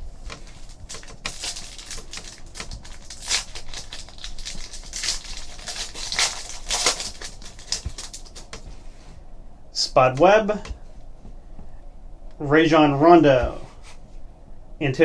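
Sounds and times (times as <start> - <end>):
foil wrappers crinkling and tearing: 0.2 - 8.7.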